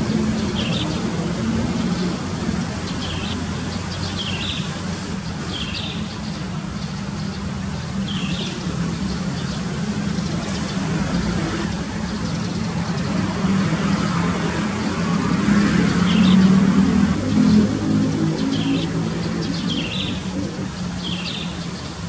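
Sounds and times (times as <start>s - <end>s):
low rumble of engine or traffic: 0.0s - 22.0s
bird chirping: 2.8s - 11.2s, 18.2s - 22.0s.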